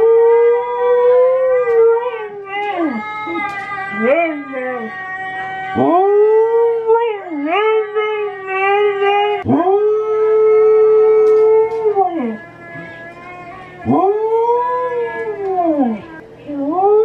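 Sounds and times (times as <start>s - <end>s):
dog howling: 0.0s - 17.0s.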